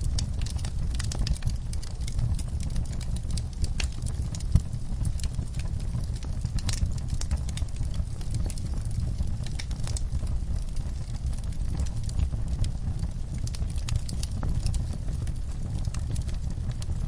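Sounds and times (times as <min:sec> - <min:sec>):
fireplace crackling and popping: 0:00.0 - 0:17.0
low rumble of fire: 0:00.0 - 0:17.0.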